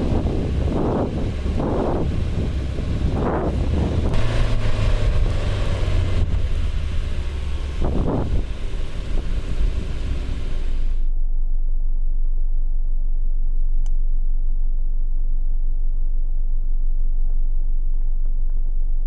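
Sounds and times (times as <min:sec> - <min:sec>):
off-road vehicle engine rumble: 0:00.0 - 0:11.0.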